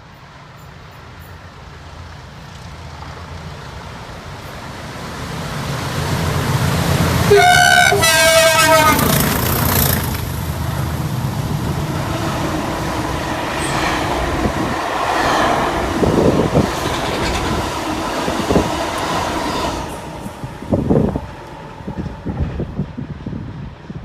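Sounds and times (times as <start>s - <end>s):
wheels clattering over rail joints: 2.4s - 22.9s
diesel locomotive engine thrashing: 5.3s - 23.7s.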